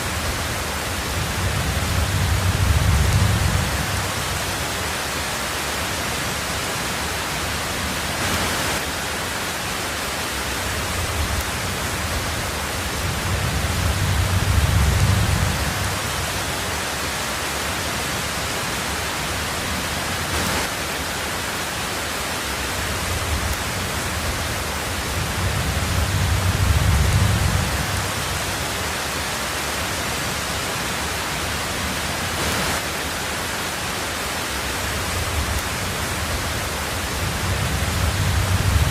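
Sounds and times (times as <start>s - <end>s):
rain on a tin roof: 0.0s - 38.9s
thunder rumbling: 0.1s - 4.6s, 10.8s - 16.5s, 23.0s - 28.6s, 35.1s - 38.9s.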